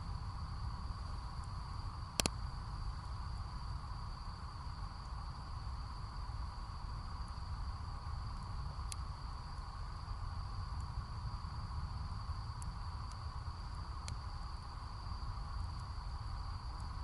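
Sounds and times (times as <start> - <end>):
crickets trilling: 0.0 - 17.0
campfire pop: 2.1 - 2.5.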